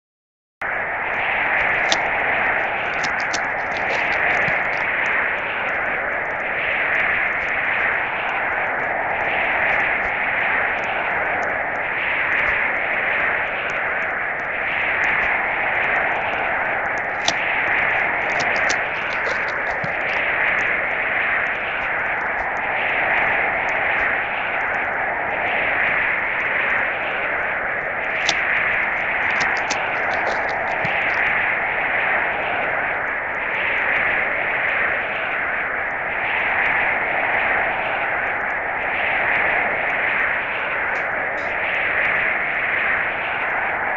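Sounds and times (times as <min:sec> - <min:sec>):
snowstorm wind hissing: 0:00.8 - 0:43.9
small ticks: 0:01.2 - 0:26.8, 0:27.9 - 0:31.3.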